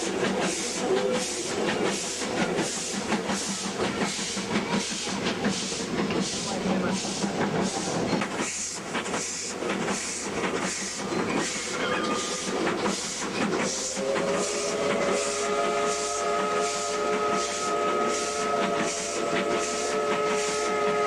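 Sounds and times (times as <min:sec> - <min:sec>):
steam locomotive exhaust chuffing: 0:00.0 - 0:21.0
multi-note steam whistle: 0:11.3 - 0:21.0.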